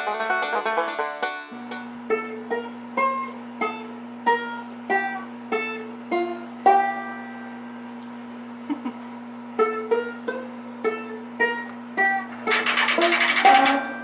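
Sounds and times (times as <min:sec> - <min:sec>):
dense strumming: 0:00.0 - 0:02.0
single plucked notes: 0:00.0 - 0:02.0.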